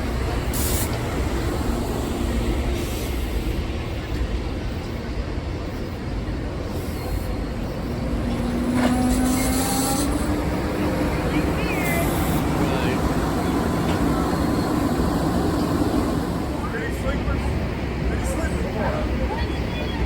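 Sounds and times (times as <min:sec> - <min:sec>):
moving train rumble: 0:00.0 - 0:20.0.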